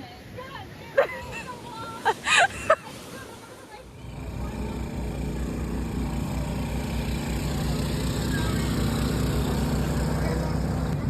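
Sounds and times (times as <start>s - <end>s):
engine running steadily: 3.8s - 11.0s.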